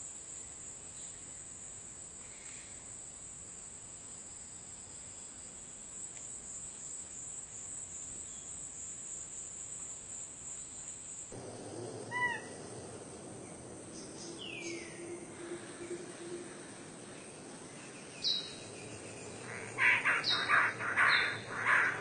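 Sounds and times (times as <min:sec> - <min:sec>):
bird's falling whistled call: 0:11.4 - 0:22.0
call rising and falling in pitch: 0:11.4 - 0:22.0
high-pitched insect drone: 0:11.4 - 0:22.0.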